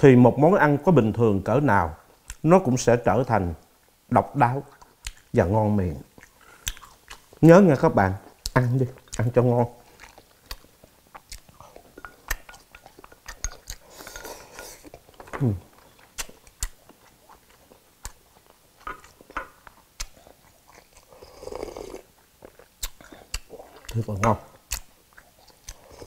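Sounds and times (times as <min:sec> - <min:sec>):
soft mouth clicks: 0:04.7 - 0:05.3, 0:06.2 - 0:07.3, 0:11.2 - 0:15.0, 0:16.0 - 0:16.9, 0:20.0 - 0:21.0, 0:21.7 - 0:24.1, 0:24.7 - 0:26.0
chewing and biting food: 0:08.3 - 0:26.0
slurping soup: 0:20.1 - 0:22.1.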